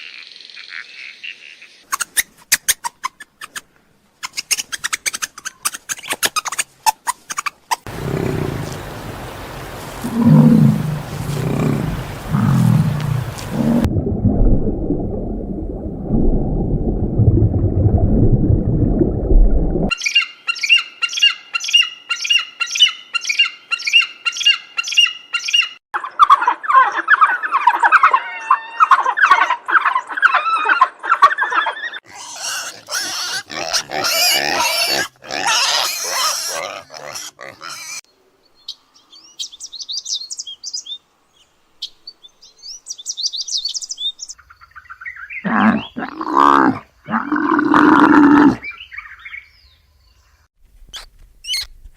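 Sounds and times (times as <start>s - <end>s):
animal growling roars: 7.9s - 13.9s, 45.5s - 48.6s
animal squeals and grunts: 7.9s - 13.9s, 26.3s - 38.0s
muffled low rumbling growl: 7.9s - 19.9s.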